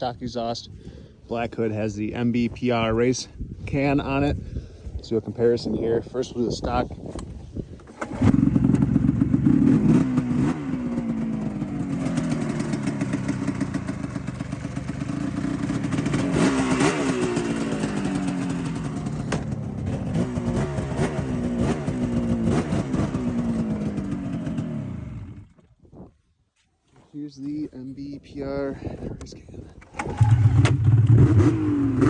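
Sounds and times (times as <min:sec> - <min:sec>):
snowmobile engine revving: 0:08.0 - 0:25.4, 0:30.0 - 0:32.0.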